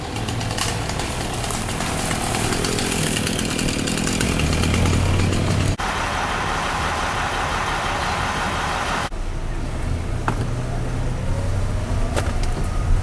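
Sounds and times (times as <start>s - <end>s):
chainsaw running: 0.0s - 9.0s
low engine drone: 0.0s - 10.1s.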